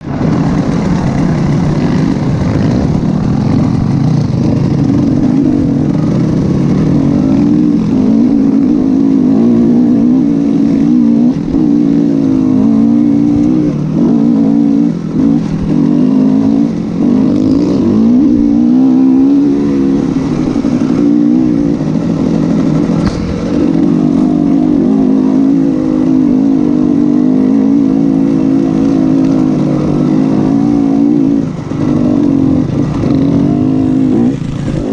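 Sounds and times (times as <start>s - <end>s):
motorcycle engine running hard: 0.0s - 34.9s.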